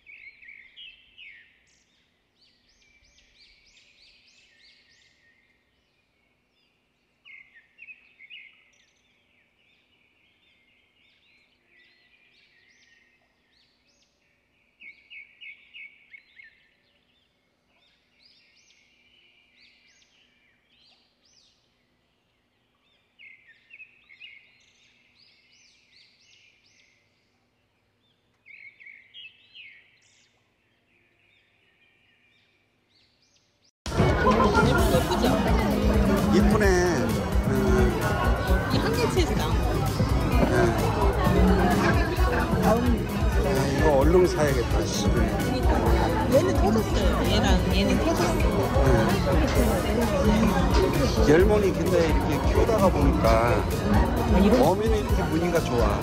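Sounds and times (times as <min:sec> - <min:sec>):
small birds twittering and chirping: 0:00.0 - 0:33.8.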